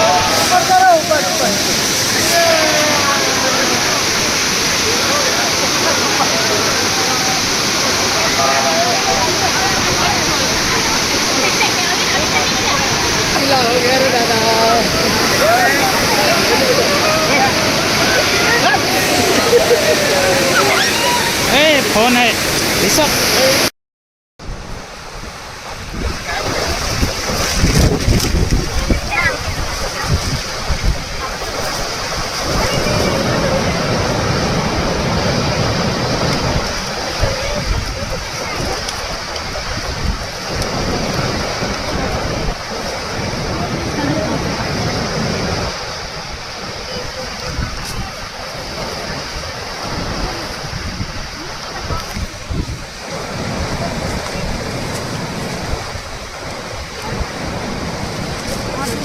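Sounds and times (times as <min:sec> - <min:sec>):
waterfall pouring and splashing: 0:00.0 - 0:23.7, 0:24.4 - 0:59.0
wind buffeting microphone: 0:24.4 - 0:59.0.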